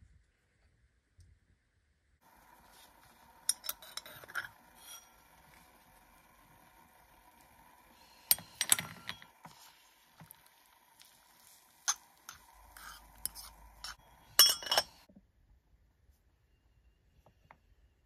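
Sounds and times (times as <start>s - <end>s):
metal spoon clinking on pot: 3.4s - 5.4s, 11.8s - 15.1s.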